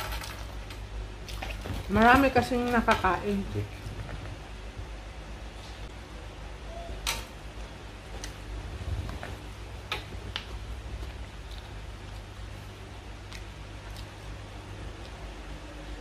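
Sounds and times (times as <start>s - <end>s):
person chewing: 10.6s - 15.3s.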